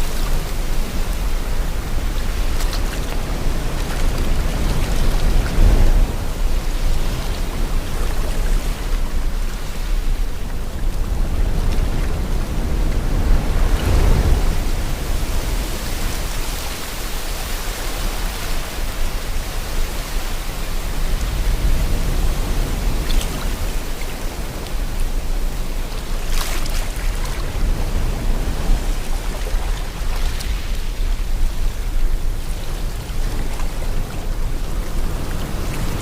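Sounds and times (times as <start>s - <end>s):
sea water and wind rushing: 0.0s - 36.0s.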